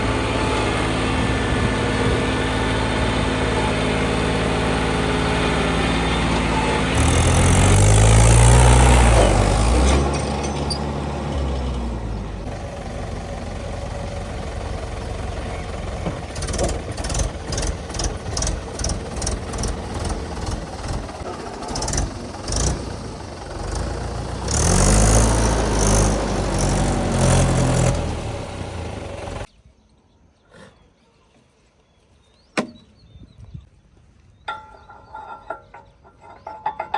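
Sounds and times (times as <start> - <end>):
tractor diesel engine revving: 0.0 - 29.5.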